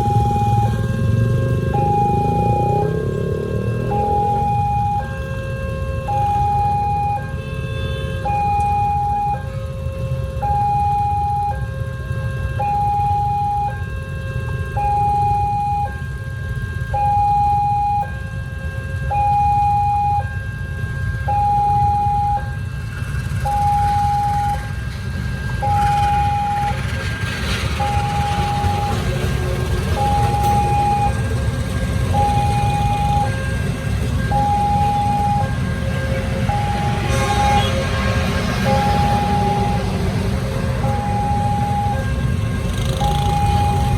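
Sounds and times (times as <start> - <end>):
lower alternating tone: 0.0 - 5.2
idling road traffic: 0.0 - 43.9
level crossing warning alarm: 0.0 - 43.9.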